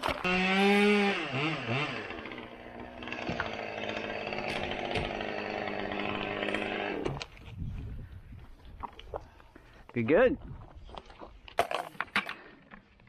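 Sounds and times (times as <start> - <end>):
chainsaw engine running: 0.0 - 7.2.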